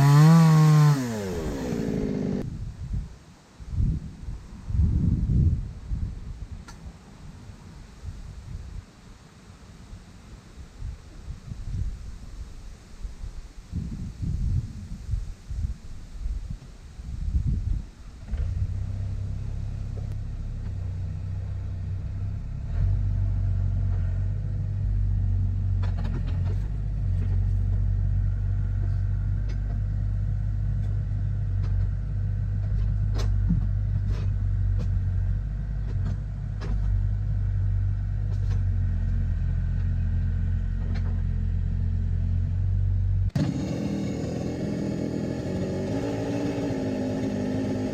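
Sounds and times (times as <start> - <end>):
engine rumbling: 0.0 - 3.1, 13.8 - 47.9.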